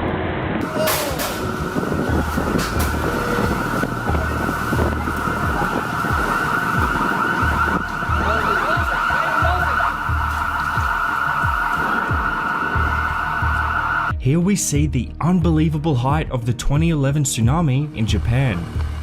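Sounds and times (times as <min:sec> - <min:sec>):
heavy low rumbling: 0:00.0 - 0:19.0
siren steady high tone: 0:00.6 - 0:14.1.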